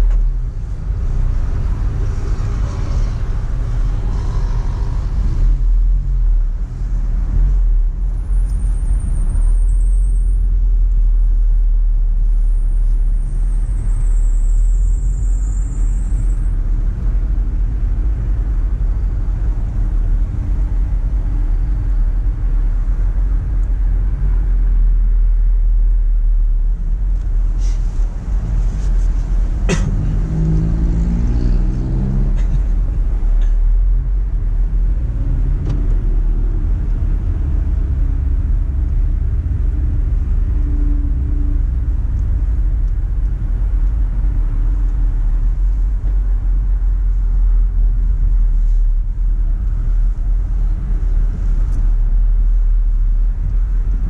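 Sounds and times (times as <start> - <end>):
car engine and road rumble: 0.0 - 54.0
engine revving: 29.7 - 32.7.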